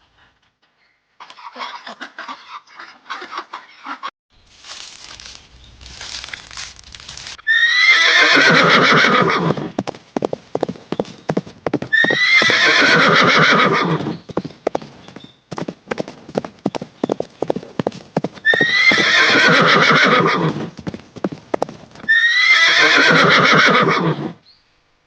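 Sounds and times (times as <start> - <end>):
horse whinnying: 7.4 - 9.7, 11.9 - 14.1, 18.4 - 20.7, 22.0 - 24.4
hoof clip-clops: 8.4 - 22.2.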